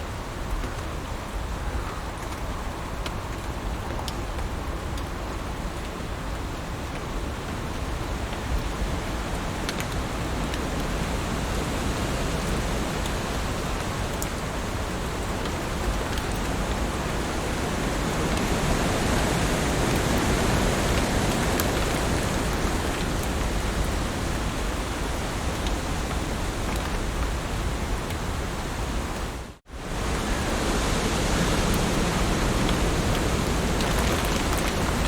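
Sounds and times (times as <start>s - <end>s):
heavy rain falling: 0.0s - 35.0s
raindrop ticks: 13.8s - 17.2s, 31.7s - 35.0s.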